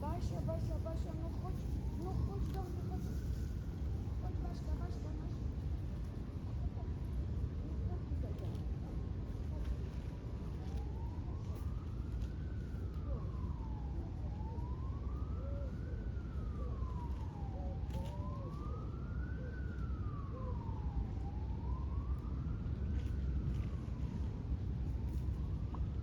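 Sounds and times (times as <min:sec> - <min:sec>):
emergency vehicle siren wailing: 0:10.0 - 0:26.0.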